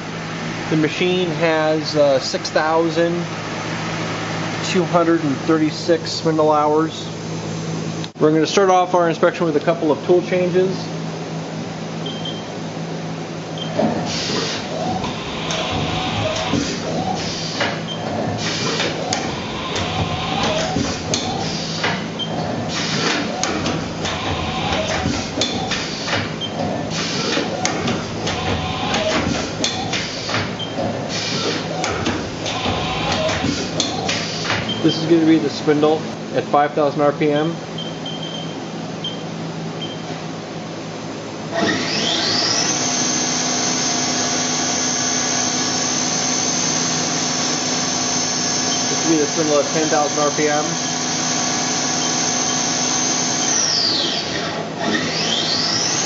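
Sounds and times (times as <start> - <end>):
steady machine hum: 0.0 - 56.0.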